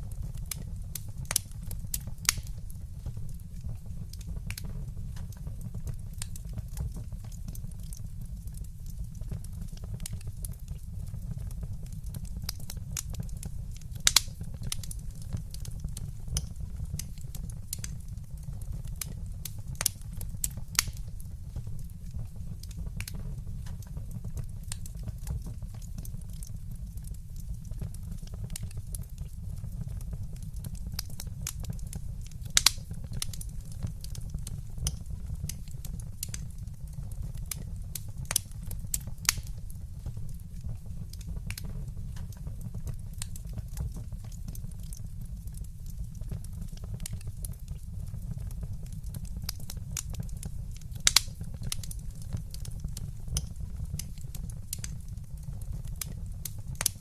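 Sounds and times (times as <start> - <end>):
low fire rumble: 0.0 - 57.0
wood fire crackling: 0.0 - 57.0.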